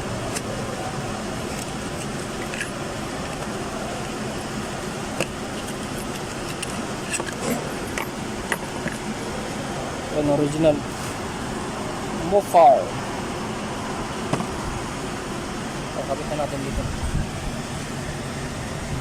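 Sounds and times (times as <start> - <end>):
steady background hum: 0.0 - 19.0
small metal parts clinking: 1.4 - 4.6, 5.2 - 9.1.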